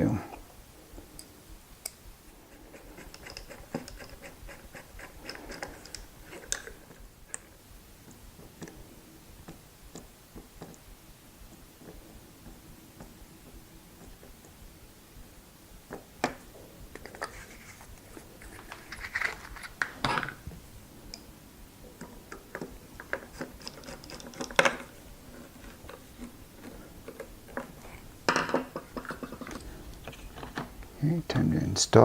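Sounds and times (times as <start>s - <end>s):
small parts and tools clicking: 2.8s - 8.8s, 22.0s - 30.7s.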